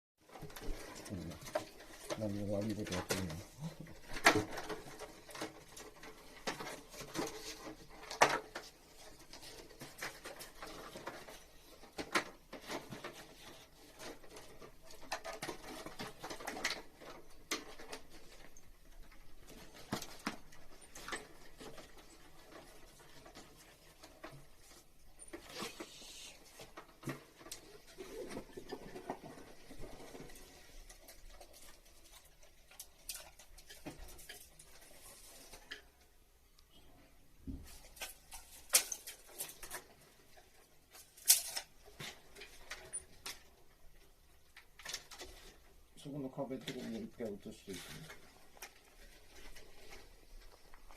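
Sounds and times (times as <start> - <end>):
hands and tools tapping and rustling: 0.2 - 36.2.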